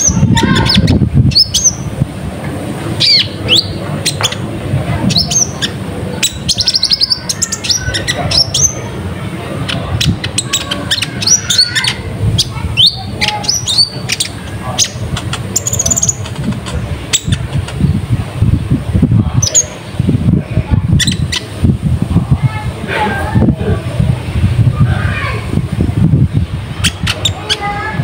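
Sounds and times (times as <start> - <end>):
sunbird chattering calls: 0.0 - 2.0, 3.0 - 9.0, 9.6 - 18.0, 20.9 - 21.6, 26.7 - 28.0.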